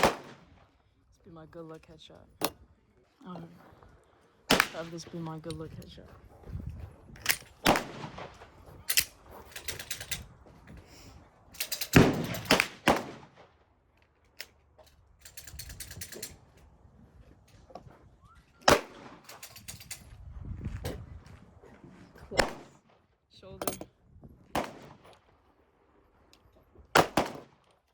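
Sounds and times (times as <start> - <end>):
gunshots and rapid-fire bursts: 0.0 - 0.6, 4.5 - 4.9, 7.6 - 8.5, 11.6 - 13.5, 18.6 - 19.6, 22.3 - 22.8, 24.5 - 25.1, 26.9 - 27.6.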